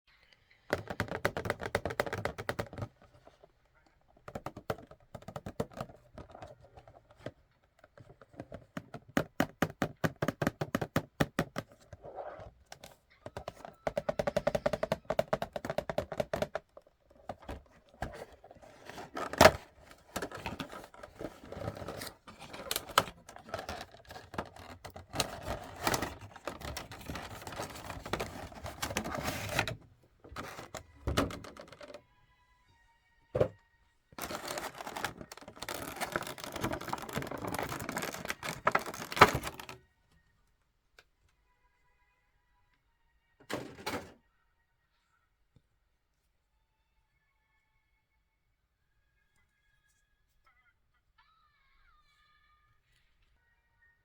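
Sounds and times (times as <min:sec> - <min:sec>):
hands handling packaging: 0:12.7 - 0:32.0, 0:34.2 - 0:39.8.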